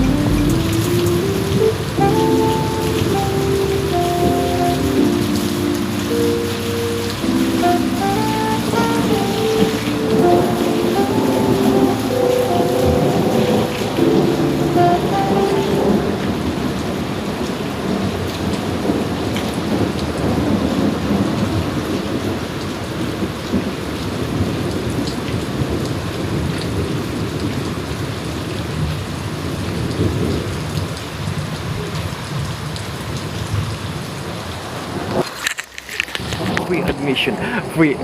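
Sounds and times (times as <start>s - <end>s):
thunder rumbling: 0.0s - 28.0s
heavy rain pouring: 0.0s - 38.0s.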